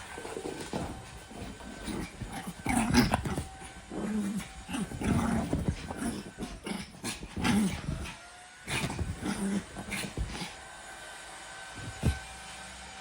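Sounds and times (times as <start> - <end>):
dog grunting playfully: 0.0 - 10.6
dog paws pattering and scrabbling: 0.0 - 10.7, 11.8 - 12.3.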